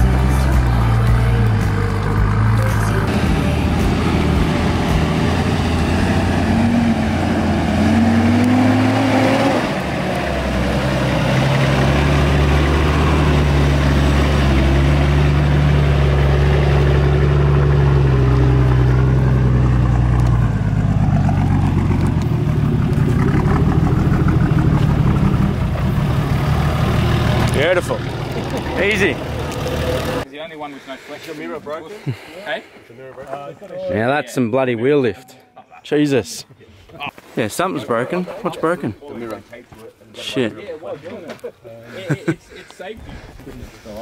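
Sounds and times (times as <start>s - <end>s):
off-road engines revving: 0.0s - 31.2s.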